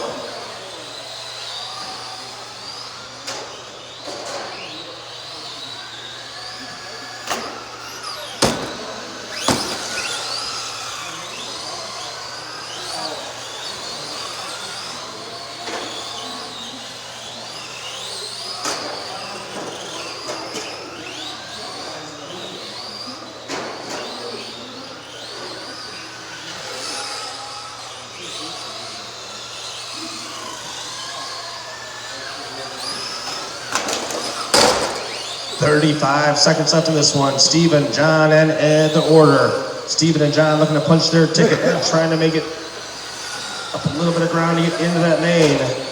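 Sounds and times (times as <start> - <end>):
electric motors whining: 0.0 - 45.9
sharp knocks: 8.4 - 10.0.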